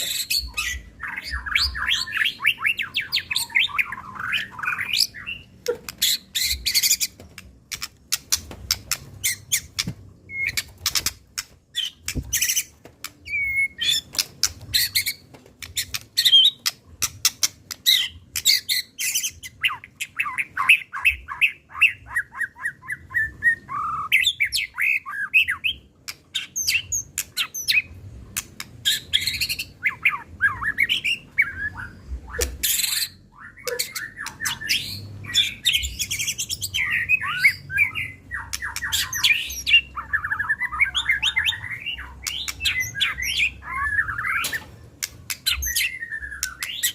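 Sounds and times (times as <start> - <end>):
songbird singing varied song: 0.0 - 7.2, 28.8 - 46.9.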